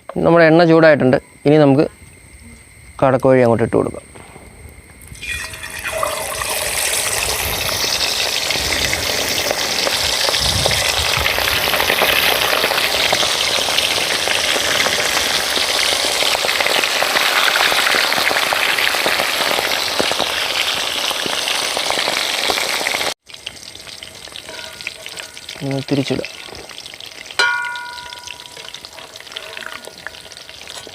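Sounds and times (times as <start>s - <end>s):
quail frying in hot oil: 5.1s - 30.9s.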